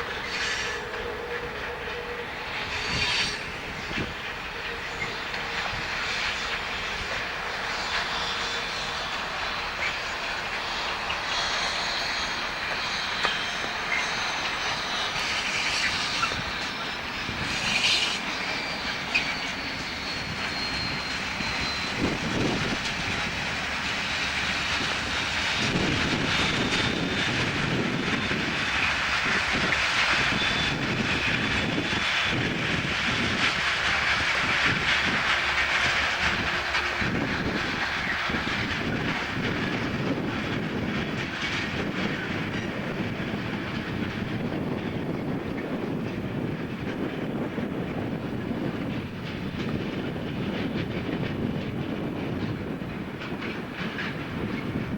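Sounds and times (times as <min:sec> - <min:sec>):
high squeal: 0:00.0 - 0:43.4
diesel locomotive running: 0:00.0 - 0:54.9
wheels clicking over rail joints: 0:00.0 - 0:54.9.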